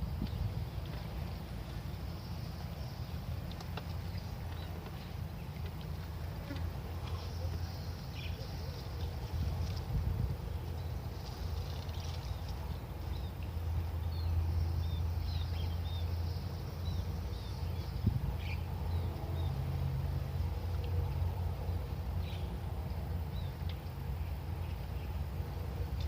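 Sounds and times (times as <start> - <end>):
small birds chirping: 0.0 - 19.7
steady low rumble: 0.0 - 26.0.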